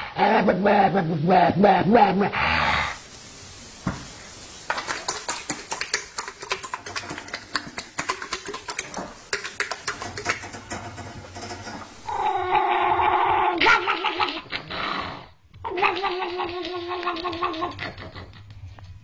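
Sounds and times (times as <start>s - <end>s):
rapid clicking and tapping: 4.7s - 11.9s
animal high-pitched cry: 12.1s - 13.8s.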